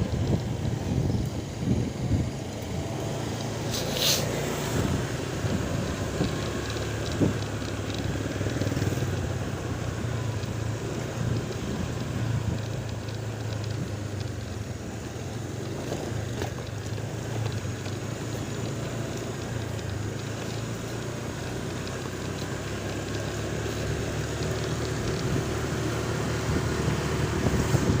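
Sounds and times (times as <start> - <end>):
wind on microphone: 0.0 - 3.0, 26.4 - 28.0
vehicle engine humming: 0.0 - 28.0.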